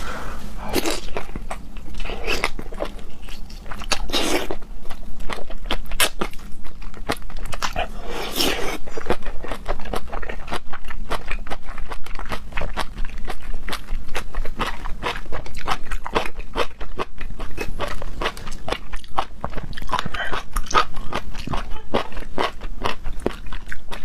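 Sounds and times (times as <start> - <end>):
wet chewing clicks: 0.8 - 24.0
slurping: 7.7 - 8.9.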